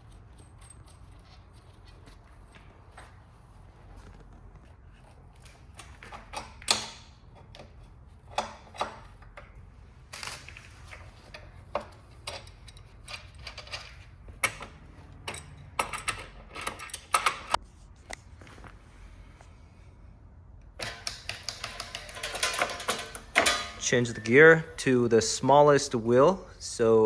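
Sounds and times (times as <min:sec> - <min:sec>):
bicycle wheel and tools clicking: 0:20.8 - 0:24.4.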